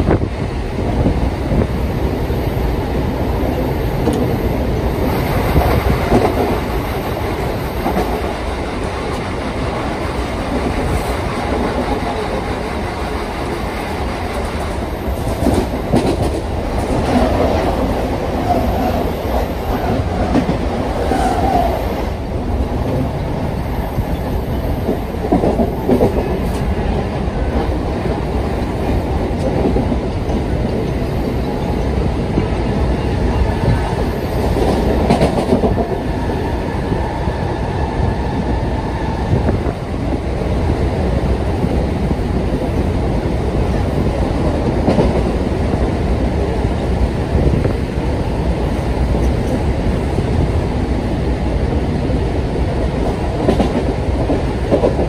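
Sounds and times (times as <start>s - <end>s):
train wheels rumbling: 0.0s - 55.0s
rail joints clattering: 3.3s - 37.4s.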